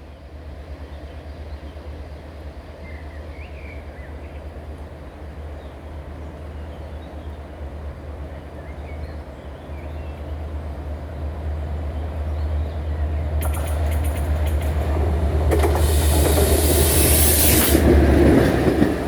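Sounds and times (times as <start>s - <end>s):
train rumble: 0.0s - 19.0s
faint bird chirps: 12.6s - 15.1s.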